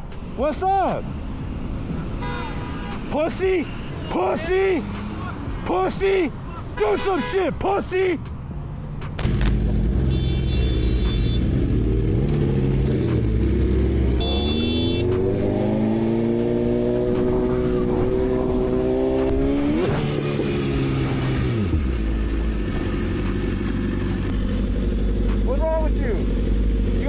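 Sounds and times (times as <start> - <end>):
vehicle engine revving: 3.4 - 6.2, 8.8 - 27.0.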